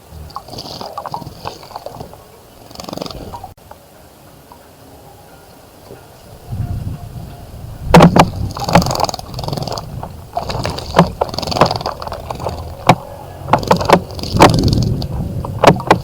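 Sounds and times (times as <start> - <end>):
sharp knocks: 7.9 - 16.0
bird splashing in water: 8.0 - 13.0.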